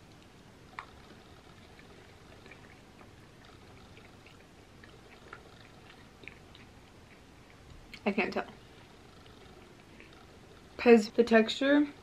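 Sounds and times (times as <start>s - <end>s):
wet chewing: 0.0s - 10.8s
lip smacks: 0.2s - 8.1s.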